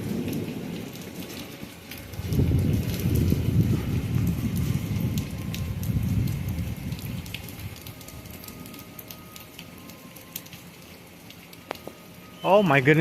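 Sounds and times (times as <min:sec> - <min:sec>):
low rumble of thunder: 0:00.0 - 0:08.8
heavy rain falling: 0:00.0 - 0:13.0.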